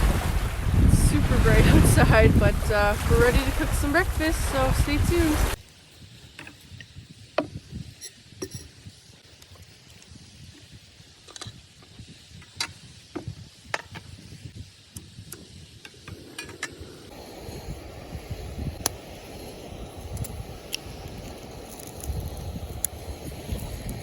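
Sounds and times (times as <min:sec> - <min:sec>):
low wind rumble: 0:00.0 - 0:05.6, 0:11.9 - 0:24.0
steady rushing noise: 0:00.0 - 0:05.6
camp cooking gear clicking: 0:18.8 - 0:24.0.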